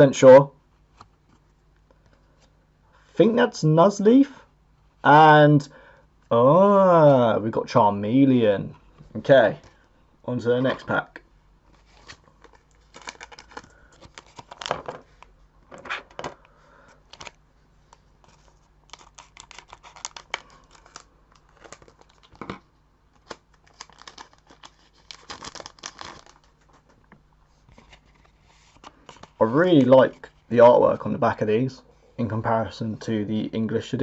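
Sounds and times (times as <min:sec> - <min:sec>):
wrapper crinkling: 0:11.8 - 0:15.3, 0:18.2 - 0:26.9.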